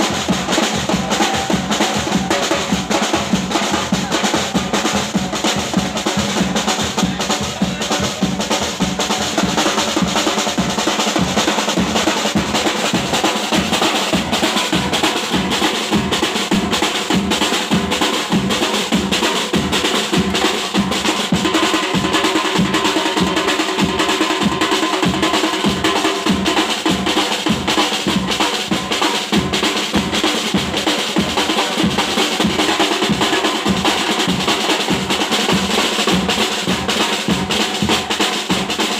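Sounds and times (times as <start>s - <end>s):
drums beating steady rhythm: 0.0s - 38.9s.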